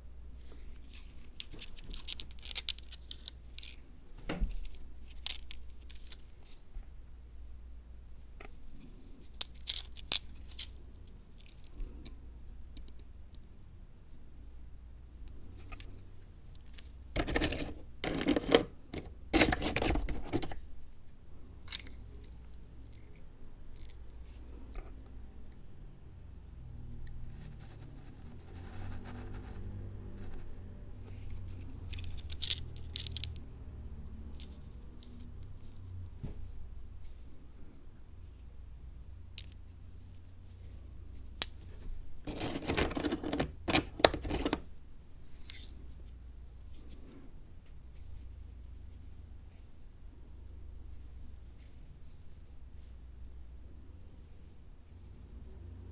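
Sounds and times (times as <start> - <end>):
dry crackling scratches: 41.6 - 44.6.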